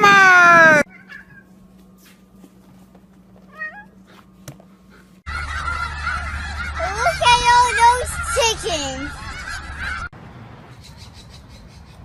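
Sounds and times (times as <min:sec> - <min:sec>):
geese honking: 0:05.3 - 0:10.1.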